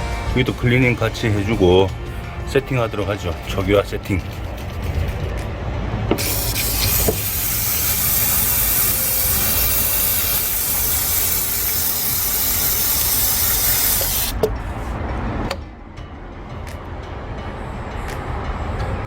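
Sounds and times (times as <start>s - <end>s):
aerosol spray hiss: 6.2s - 14.4s.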